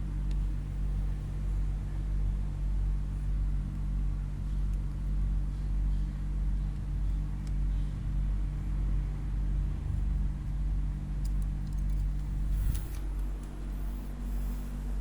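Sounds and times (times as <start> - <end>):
low machine hum: 0.0 - 15.0
light clicks: 11.2 - 13.9
short rustle: 12.0 - 14.9.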